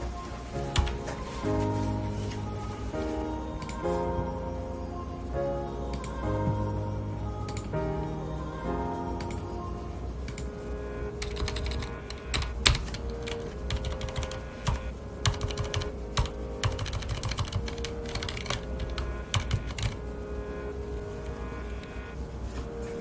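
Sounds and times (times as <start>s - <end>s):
typing on mechanical keyboard: 11.2s - 20.0s.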